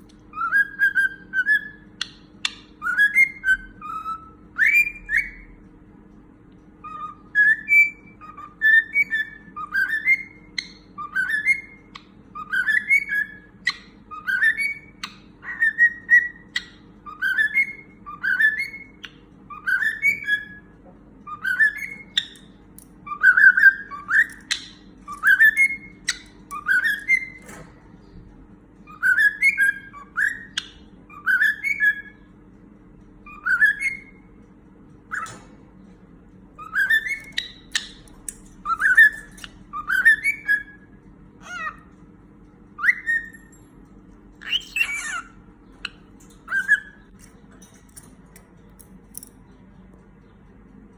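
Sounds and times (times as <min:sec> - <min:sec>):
cockatiel whistling: 0:00.3 - 0:05.6, 0:06.8 - 0:20.7, 0:21.3 - 0:22.4, 0:23.1 - 0:27.6, 0:28.9 - 0:32.3, 0:33.2 - 0:34.3, 0:36.6 - 0:38.0, 0:38.6 - 0:41.8, 0:42.8 - 0:43.5, 0:44.4 - 0:47.1.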